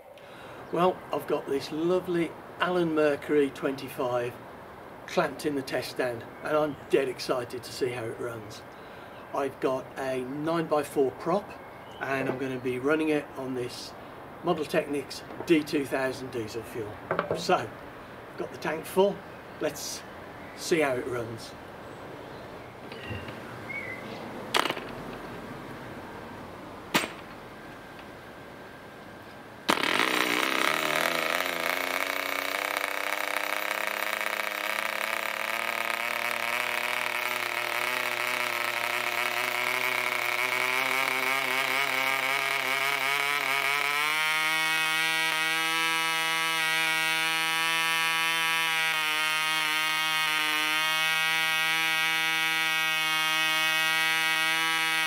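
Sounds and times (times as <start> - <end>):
sharp knocks: 17.1 - 17.5, 24.5 - 25.0, 26.9 - 27.4
model aircraft engine buzzing: 29.7 - 55.0.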